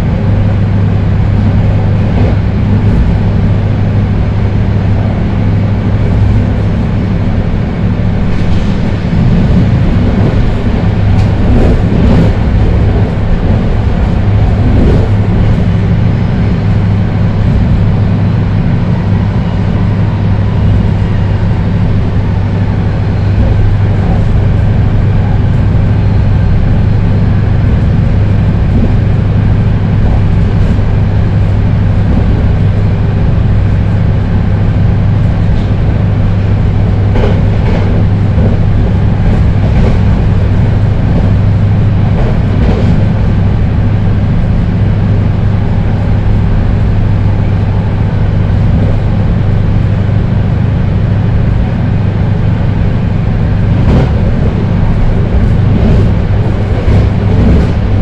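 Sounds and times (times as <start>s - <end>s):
train wheels rumbling on rails: 0.0s - 58.0s
track clicks and knocks: 34.8s - 43.8s, 53.5s - 58.0s.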